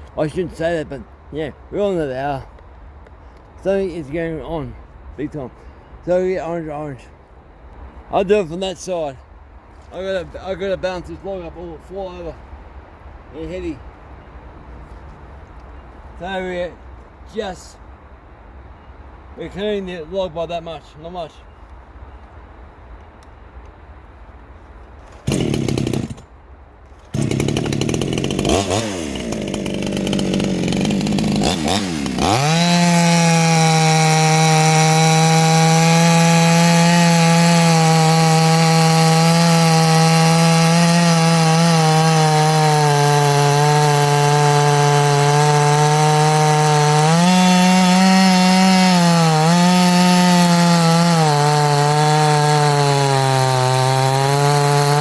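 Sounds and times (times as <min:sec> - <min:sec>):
chainsaw cutting a log: 0:25.2 - 0:26.2, 0:27.1 - 0:55.0.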